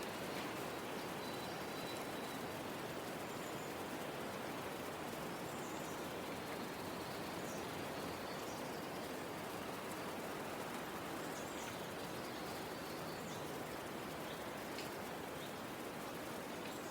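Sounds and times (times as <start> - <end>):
outdoor ambient hiss: 0.0 - 16.9.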